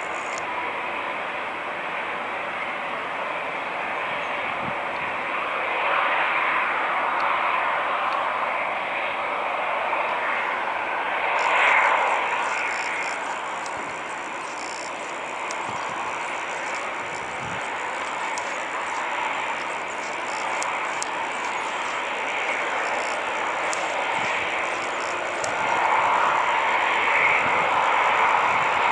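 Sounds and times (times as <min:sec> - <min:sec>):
jet engines whining: 0:00.0 - 0:28.9
faint ticks: 0:00.1 - 0:00.4, 0:11.4 - 0:26.0.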